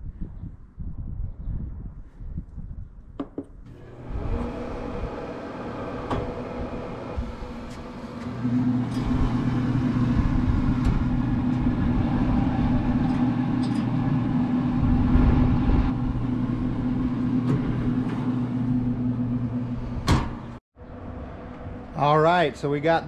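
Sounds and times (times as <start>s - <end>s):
grill fan humming: 3.7s - 20.6s
low rumbling noise: 3.8s - 23.0s.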